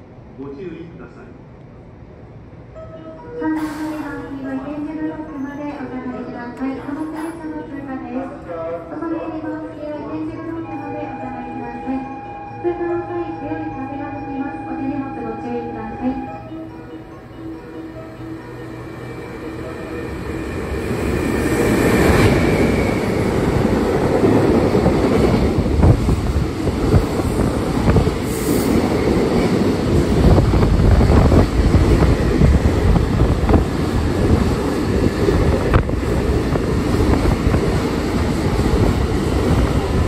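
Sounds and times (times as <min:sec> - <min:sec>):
brief high tone: 0:10.4 - 0:20.2
freight train wheels rumbling on rail: 0:13.1 - 0:40.0.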